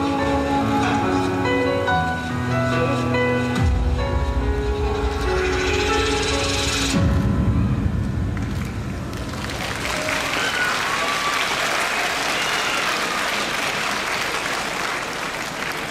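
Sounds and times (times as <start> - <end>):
audience applauding: 8.4 - 15.9.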